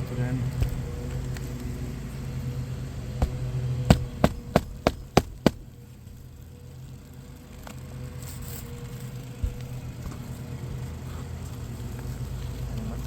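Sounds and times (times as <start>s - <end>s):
hammer striking nail: 3.2s - 5.6s.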